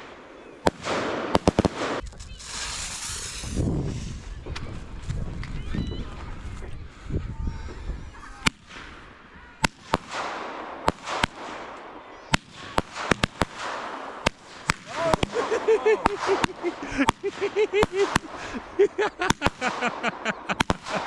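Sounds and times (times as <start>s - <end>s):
crackling hiss: 0.0s - 4.3s
firework bangs: 0.0s - 4.8s, 8.4s - 21.0s.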